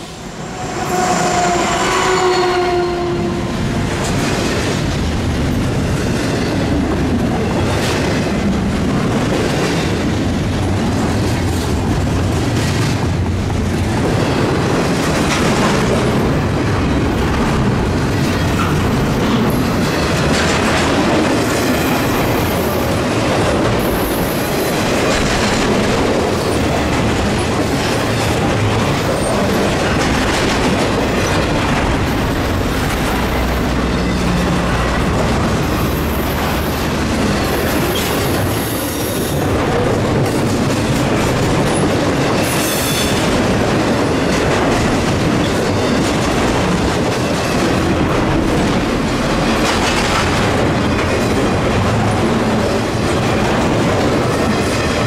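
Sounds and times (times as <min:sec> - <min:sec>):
train wheels rumbling and clacking: 0:00.0 - 0:55.0
high-pitched wheel squeals: 0:00.4 - 0:03.3.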